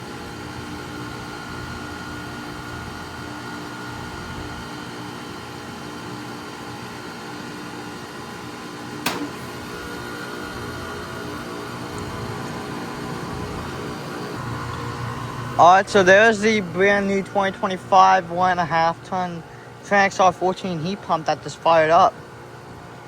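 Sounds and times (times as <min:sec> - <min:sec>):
heat pump humming: 0:00.0 - 0:23.0
sharp click: 0:09.0 - 0:09.4.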